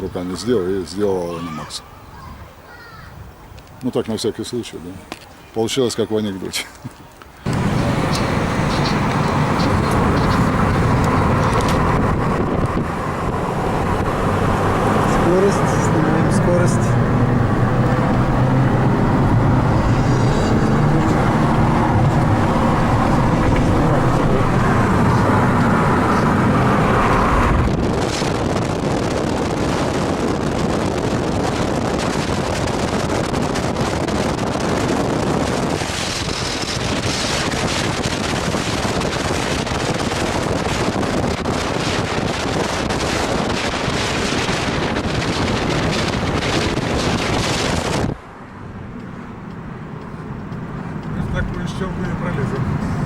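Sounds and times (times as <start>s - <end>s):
wind noise over microphone: 1.4s - 3.8s, 7.4s - 53.0s
car engine accelerating: 7.5s - 53.0s.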